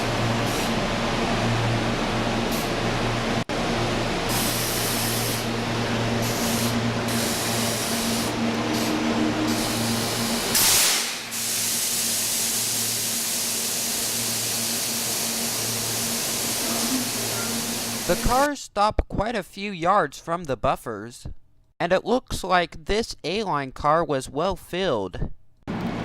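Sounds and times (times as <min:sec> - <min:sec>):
electrical hum: 0:00.0 - 0:10.6, 0:15.4 - 0:18.5
air blast from train: 0:04.3 - 0:05.5, 0:06.2 - 0:18.5
low rumble of train: 0:05.4 - 0:11.3
noisy hiss: 0:09.5 - 0:18.5.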